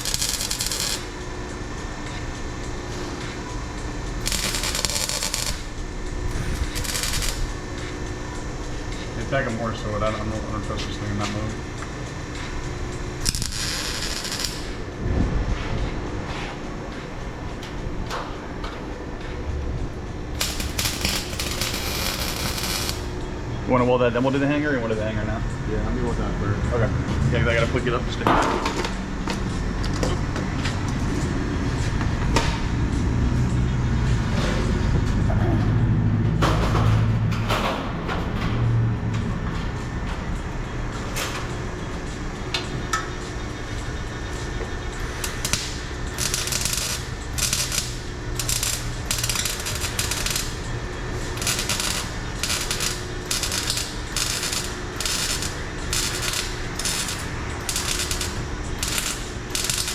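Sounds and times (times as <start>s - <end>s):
arc welder crackling: 0.0s - 15.1s, 20.1s - 24.5s, 43.3s - 59.9s.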